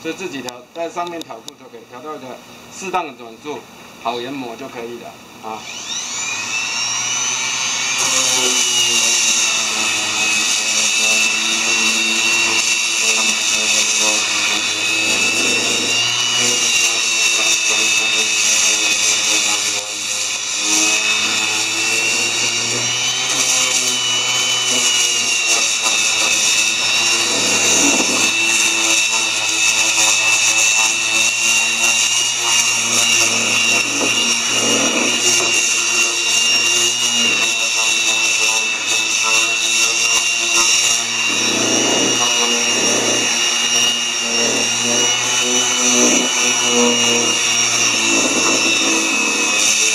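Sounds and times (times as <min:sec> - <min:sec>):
orbital sander whining on wood: 0:04.1 - 0:49.9.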